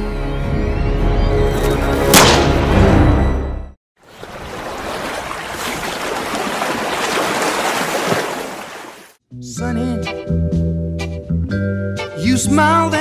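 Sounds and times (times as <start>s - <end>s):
dark dramatic music: 0.0s - 3.8s
gunshot: 2.1s - 2.6s
stormy water rushing: 4.0s - 9.2s.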